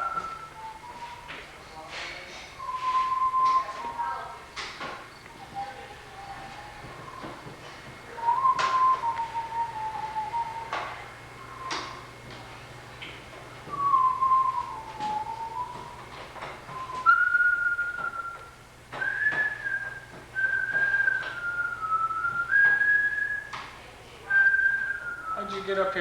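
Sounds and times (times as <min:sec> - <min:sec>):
person whistling a tune: 0:00.0 - 0:01.5, 0:02.6 - 0:04.4, 0:05.4 - 0:10.9, 0:11.5 - 0:12.1, 0:13.7 - 0:16.1, 0:16.7 - 0:23.7, 0:24.3 - 0:26.0.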